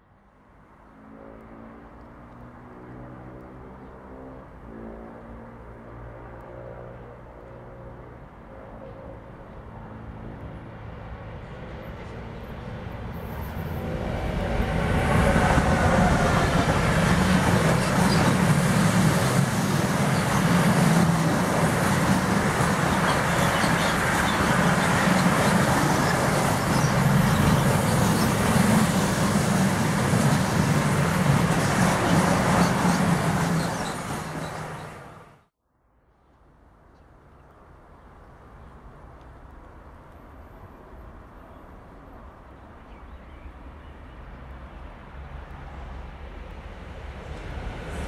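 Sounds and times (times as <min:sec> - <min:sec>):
locomotive low drone: 0:07.9 - 0:35.4
freight train passing: 0:08.0 - 0:35.5, 0:38.8 - 0:48.0
wheel and rail noise: 0:10.4 - 0:35.4.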